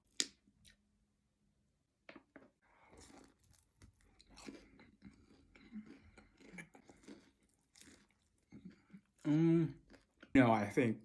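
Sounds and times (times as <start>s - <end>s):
chewing crispy fried chicken: 2.8s - 10.7s.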